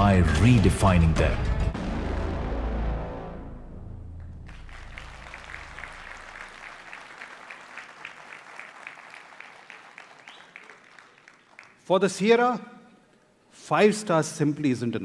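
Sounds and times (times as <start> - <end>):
audience applauding: 4.2 - 11.8.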